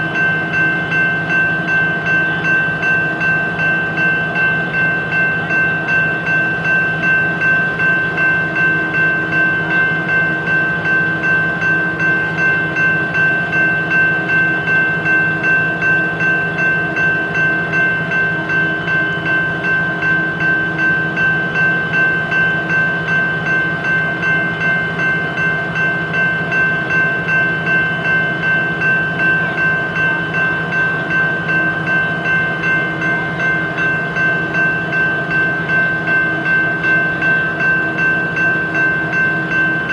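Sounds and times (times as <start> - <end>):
freight train running: 0.0 - 39.9.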